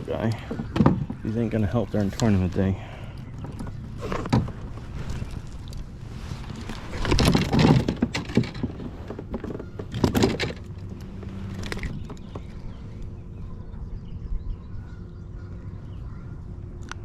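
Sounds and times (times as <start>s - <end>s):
fishing gear knocking and rattling: 3.4s - 12.6s.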